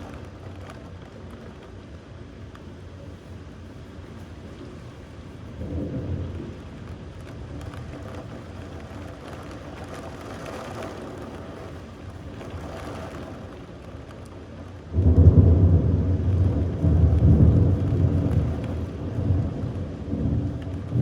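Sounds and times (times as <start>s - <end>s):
steady rain: 0.0s - 21.0s
low rolling thunder: 5.4s - 21.0s.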